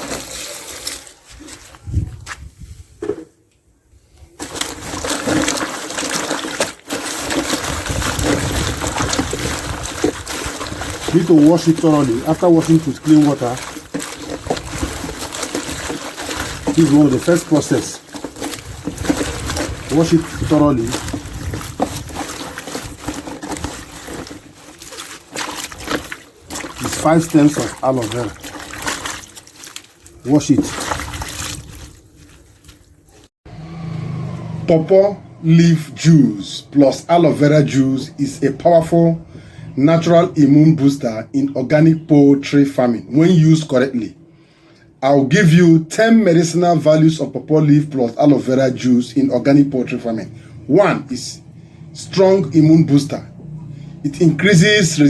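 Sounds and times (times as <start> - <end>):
water running and splashing: 0.0 - 1.3, 4.4 - 33.3.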